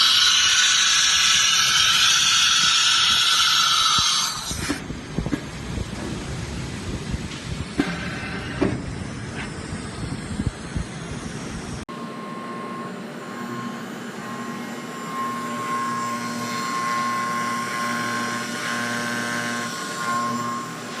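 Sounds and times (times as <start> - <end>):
milling machine spindle whine: 0.0 - 4.6, 8.0 - 21.0.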